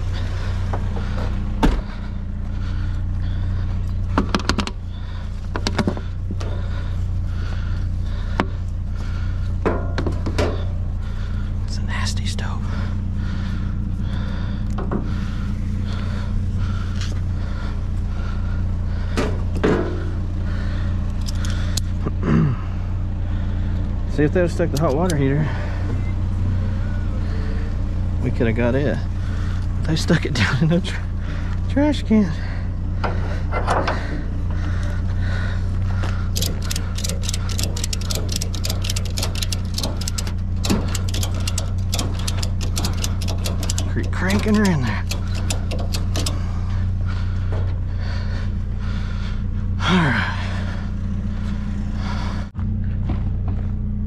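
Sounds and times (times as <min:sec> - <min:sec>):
vehicle engine idling: 0:00.0 - 0:54.0
clunks and knocks: 0:00.4 - 0:02.6, 0:04.0 - 0:10.8, 0:14.6 - 0:15.4, 0:19.0 - 0:20.2, 0:32.9 - 0:35.0, 0:36.2 - 0:47.9
ratchet strap clicking: 0:21.1 - 0:21.9, 0:36.3 - 0:46.4.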